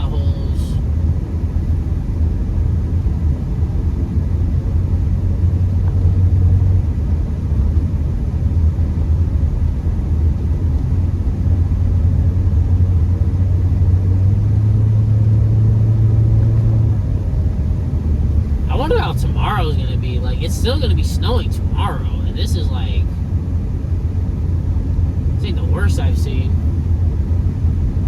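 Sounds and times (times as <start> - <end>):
car engine and tyres droning: 0.0 - 28.0.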